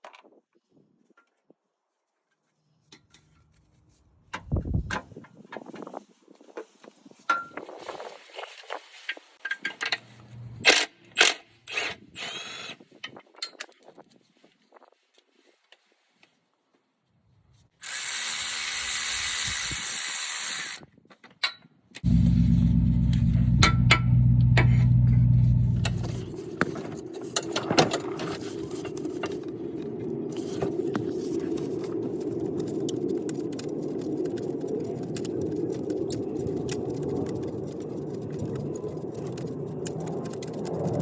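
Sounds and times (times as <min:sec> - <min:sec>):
steady motor hum: 0:22.0 - 0:26.6.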